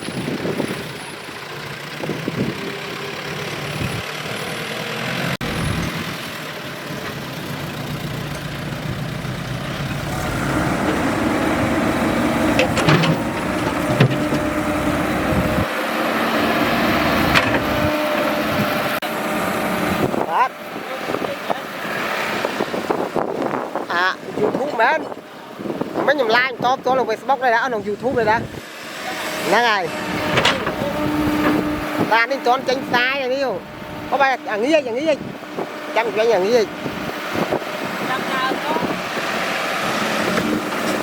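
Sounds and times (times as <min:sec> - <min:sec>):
excavator diesel engine running: 0:00.0 - 0:26.3, 0:28.1 - 0:41.0
sharp knocks: 0:12.5 - 0:14.7.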